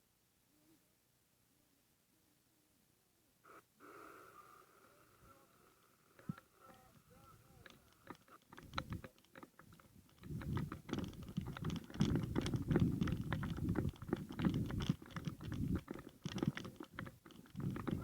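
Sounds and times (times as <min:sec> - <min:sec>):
small clicks and rustles: 0:05.2 - 0:18.0
wind buffeting microphone: 0:10.0 - 0:18.0.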